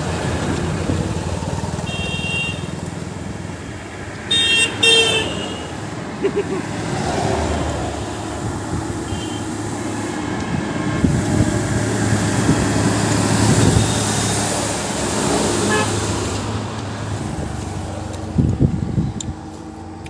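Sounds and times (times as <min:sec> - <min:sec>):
vehicles passing on highway: 0:00.0 - 0:20.0
car horn toot: 0:01.9 - 0:02.8, 0:04.3 - 0:05.7, 0:09.1 - 0:09.5, 0:15.6 - 0:16.0.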